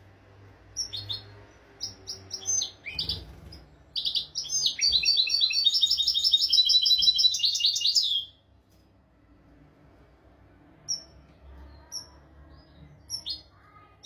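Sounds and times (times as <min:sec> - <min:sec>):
goldfinch singing: 0:00.8 - 0:08.3.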